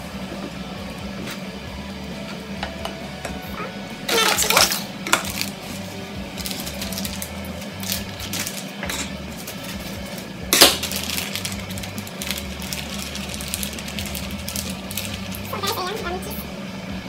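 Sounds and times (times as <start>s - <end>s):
low hum: 0.0s - 17.0s
plastic bag crinkling: 4.1s - 16.0s.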